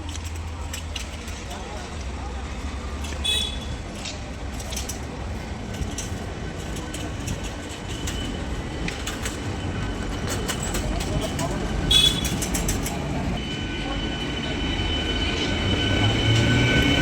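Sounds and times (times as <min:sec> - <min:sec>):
wheels clicking over rail joints: 0:00.0 - 0:13.4
train rumbling on track: 0:00.0 - 0:17.0.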